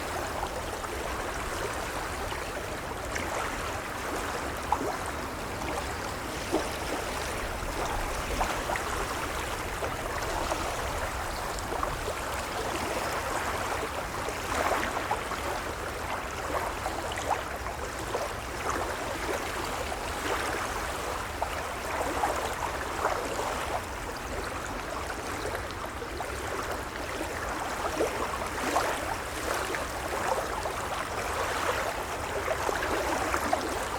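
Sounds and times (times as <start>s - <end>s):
waves lapping: 0.0s - 17.4s, 26.2s - 33.9s.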